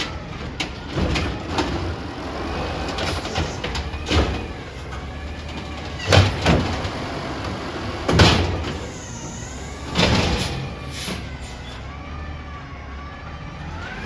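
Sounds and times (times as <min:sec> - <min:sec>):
cart banging against truck: 0:00.0 - 0:11.4
hydraulics whining: 0:00.0 - 0:14.0
truck engine idling: 0:00.0 - 0:14.0.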